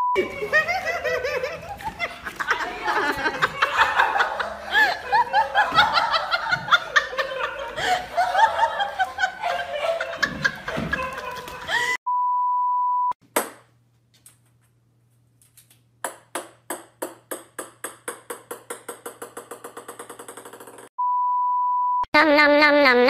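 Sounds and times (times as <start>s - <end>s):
high test-tone beep: 12.1s - 13.2s, 21.0s - 22.1s
ping-pong ball bouncing on wood: 16.0s - 20.9s.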